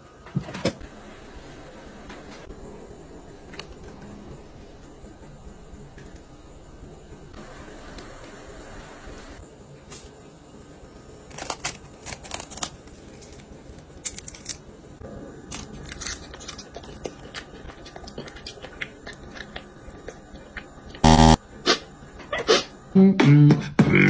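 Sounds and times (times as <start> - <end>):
crunchy food being chewed: 15.4 - 21.1.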